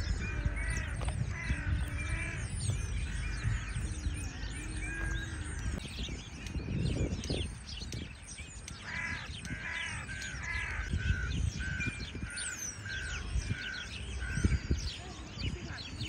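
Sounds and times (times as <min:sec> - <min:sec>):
crow cawing: 0:08.8 - 0:11.9.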